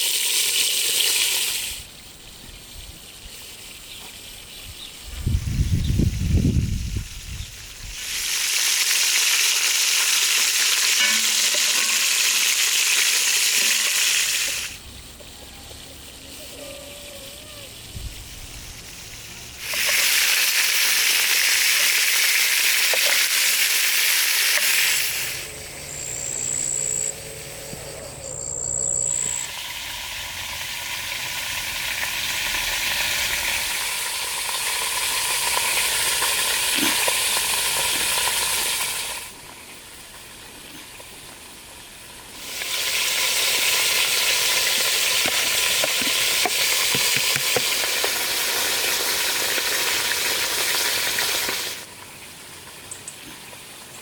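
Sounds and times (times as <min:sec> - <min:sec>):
food sizzling in a hot pan: 0:06.0 - 0:14.8, 0:18.2 - 0:26.5, 0:29.2 - 0:39.4, 0:42.1 - 0:51.9.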